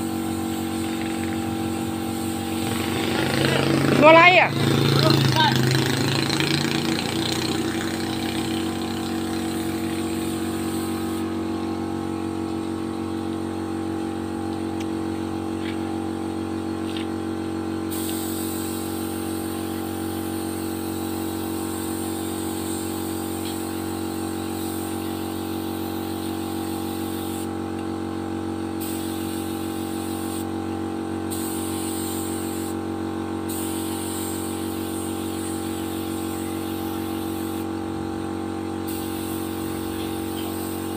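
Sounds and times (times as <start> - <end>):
spray gun hissing: 0.0 - 11.3, 17.9 - 27.5, 28.8 - 30.5, 31.3 - 32.8, 33.5 - 37.7, 38.9 - 40.9
air compressor running: 0.0 - 40.9.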